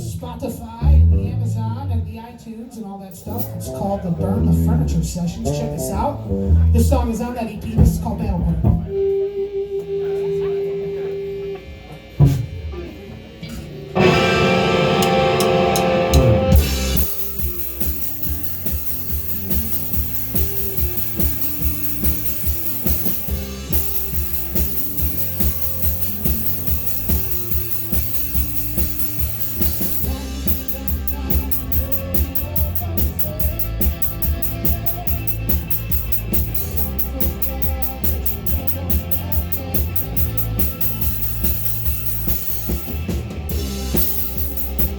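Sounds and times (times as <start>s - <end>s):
live rock band playing: 3.1s - 11.4s, 12.1s - 44.9s
cymbals: 13.9s - 44.9s.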